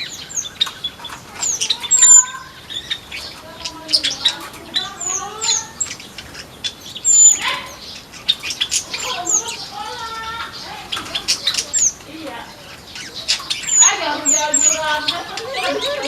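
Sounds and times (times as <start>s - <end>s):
birds chirping: 0.0s - 16.0s
wings flapping: 7.3s - 16.0s.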